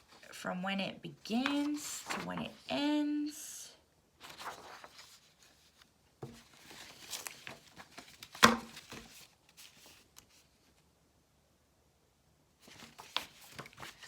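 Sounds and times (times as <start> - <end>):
paper sheets rustling: 1.3 - 2.9, 4.2 - 10.8, 12.6 - 14.0.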